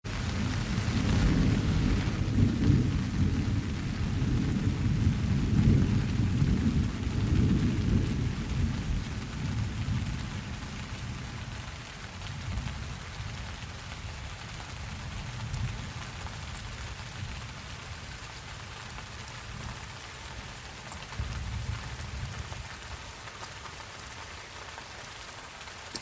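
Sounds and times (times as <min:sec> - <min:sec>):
steady rain: 0:00.0 - 0:26.0
thunder rumbling: 0:00.1 - 0:13.4.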